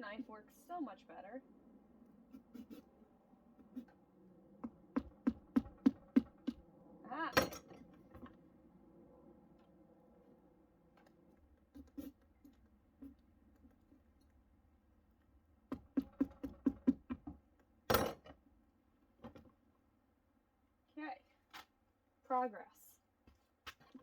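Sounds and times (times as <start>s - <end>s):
knife cutting pumpkin: 2.3s - 2.9s, 3.6s - 4.0s, 11.6s - 13.8s.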